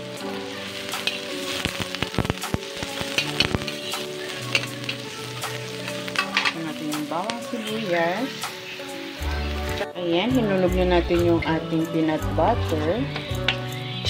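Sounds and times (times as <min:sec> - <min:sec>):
onion and garlic sizzling in oil: 0:00.0 - 0:14.0
metal spoon scraping a pan: 0:00.6 - 0:01.8, 0:02.8 - 0:09.8.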